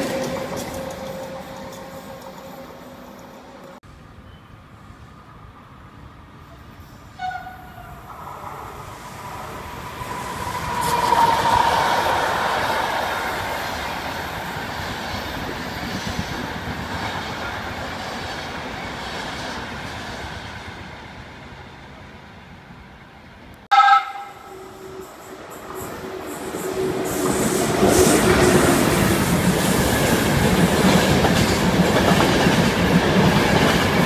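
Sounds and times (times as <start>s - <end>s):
train wheels rumbling on rails: 0.0s - 3.8s, 6.8s - 22.0s, 24.8s - 34.0s
train horn toot: 7.1s - 8.0s, 23.7s - 25.4s.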